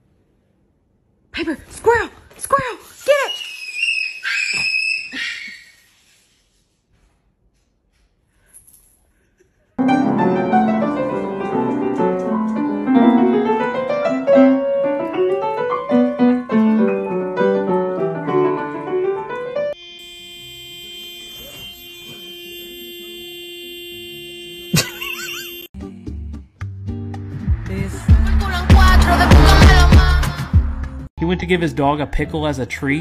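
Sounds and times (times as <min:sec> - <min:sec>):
fast piano music: 0:09.8 - 0:19.7.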